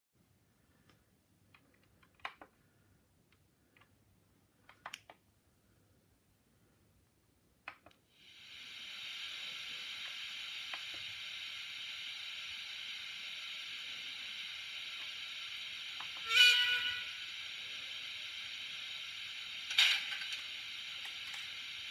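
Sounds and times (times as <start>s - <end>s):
faint clicks: 0.7s - 2.7s, 4.6s - 5.2s
steam hiss from small speaker: 8.1s - 21.9s.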